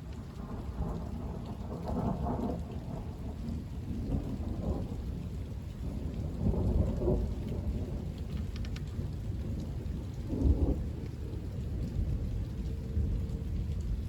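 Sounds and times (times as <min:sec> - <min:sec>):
steady rain: 0:00.0 - 0:14.0
thunder rumbling: 0:00.1 - 0:14.0.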